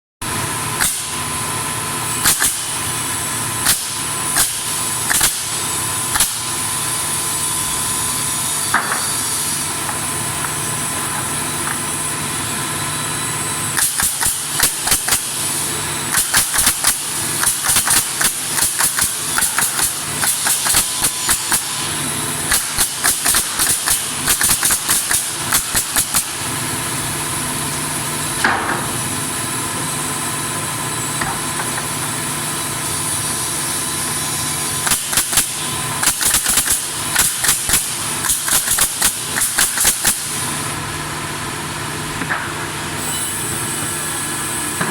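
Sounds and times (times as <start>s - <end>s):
workshop machinery droning: 0.2s - 44.9s
nailing pallet boards: 16.1s - 21.8s, 22.5s - 26.4s, 34.8s - 40.3s.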